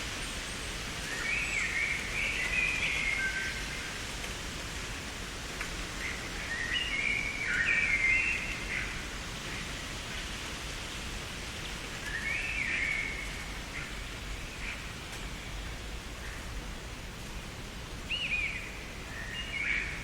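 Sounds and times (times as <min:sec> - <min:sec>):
steady background hiss: 0:00.0 - 0:20.0
songbird singing whistled notes: 0:01.0 - 0:03.6, 0:06.0 - 0:08.9, 0:12.1 - 0:13.4, 0:18.1 - 0:20.0.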